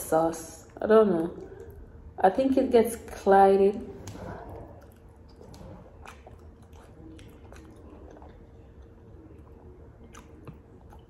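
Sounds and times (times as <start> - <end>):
person chewing wetly: 4.0 - 11.0.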